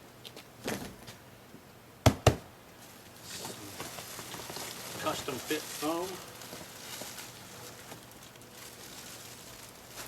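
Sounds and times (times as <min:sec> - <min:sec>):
cardboard rustling and scraping: 0:03.2 - 0:08.1.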